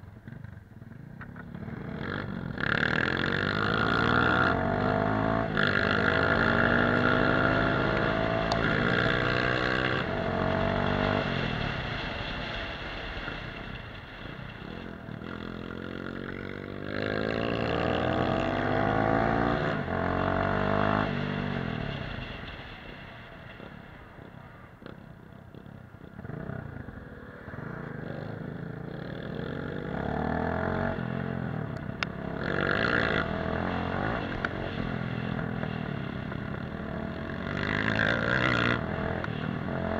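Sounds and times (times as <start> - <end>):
dirt bike engine revving: 1.7 - 11.7, 32.2 - 35.8.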